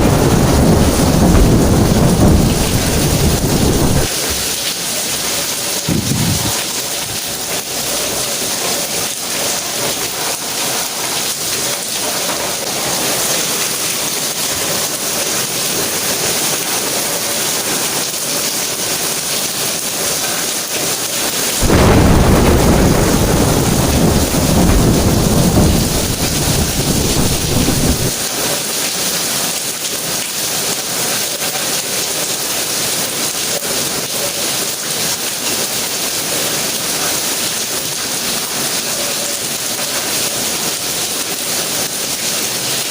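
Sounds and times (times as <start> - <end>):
thunder rumble: 0.0 - 4.7, 5.7 - 7.7, 21.6 - 28.2
steady rain: 0.0 - 42.9.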